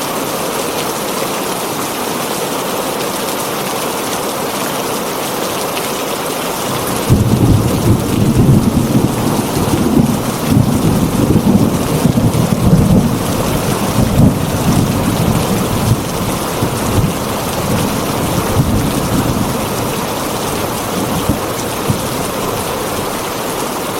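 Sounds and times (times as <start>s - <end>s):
heavy rain on a tin roof: 0.0s - 23.9s
rolling thunder: 6.7s - 23.2s.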